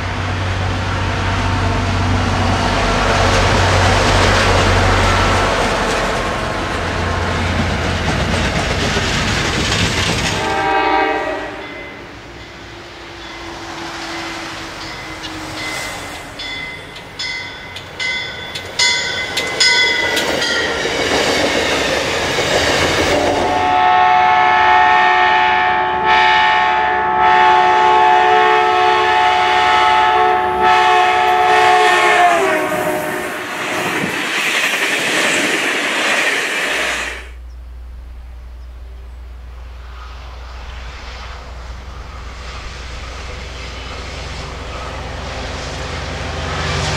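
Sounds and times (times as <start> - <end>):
trains rolling past: 0.0 - 46.9
wheels clattering over rail joints: 5.8 - 10.5
locomotive horn blast: 10.2 - 16.2, 23.1 - 33.9.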